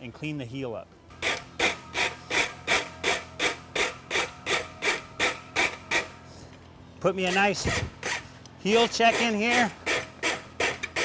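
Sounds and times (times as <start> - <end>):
rasp filing steel horseshoe: 1.2 - 6.1, 7.2 - 11.0.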